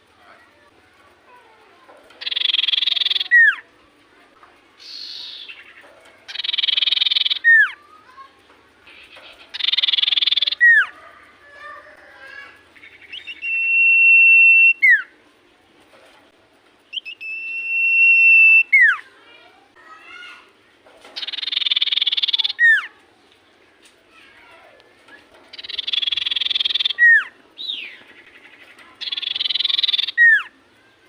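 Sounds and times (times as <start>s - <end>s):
bird buzzy rasping trills: 1.3s - 3.7s, 4.8s - 15.2s, 21.0s - 23.0s, 25.0s - 30.6s
bird long steady whistles: 2.2s - 3.6s, 6.3s - 7.7s, 9.5s - 11.0s, 13.0s - 15.1s, 16.9s - 19.0s, 21.3s - 22.8s, 25.6s - 27.9s, 29.0s - 30.5s.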